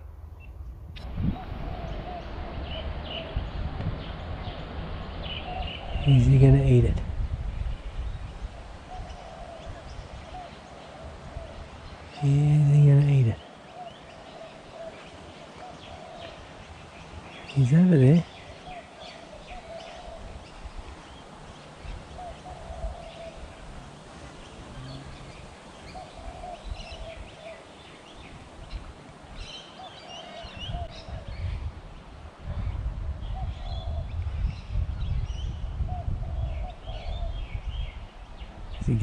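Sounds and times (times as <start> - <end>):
low warbling bird call: 0.4 - 7.0, 21.8 - 28.8
higher bird chirps: 7.6 - 31.1.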